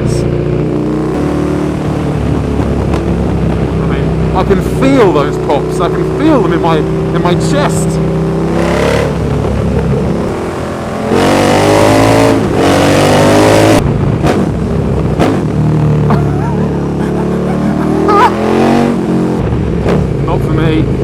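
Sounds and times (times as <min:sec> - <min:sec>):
motorcycle engine revving: 0:00.0 - 0:21.0
exhaust pops: 0:02.1 - 0:04.9, 0:19.4 - 0:20.4.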